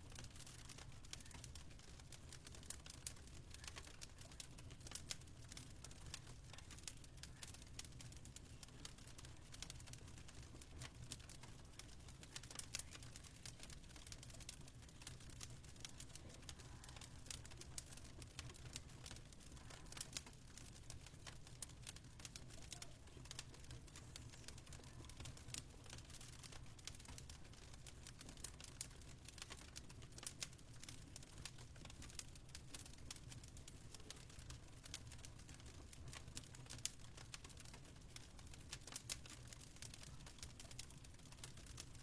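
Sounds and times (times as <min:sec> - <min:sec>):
fire crackling: 0:00.0 - 0:42.0.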